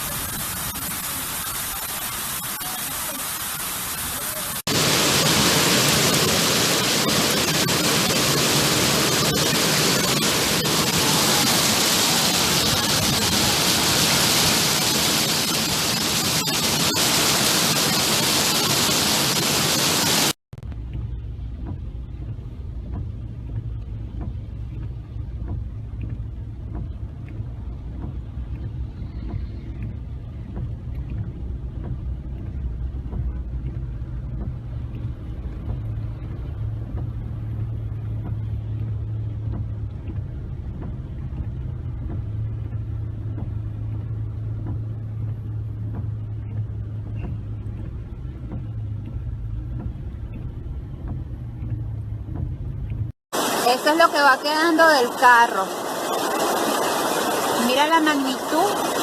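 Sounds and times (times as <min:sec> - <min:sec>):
rushing floodwater rumble: 0:00.0 - 0:59.0.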